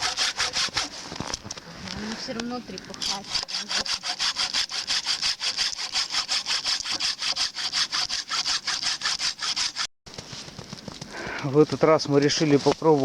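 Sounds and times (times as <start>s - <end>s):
hand saw cutting log: 0.0s - 1.1s, 3.0s - 9.9s.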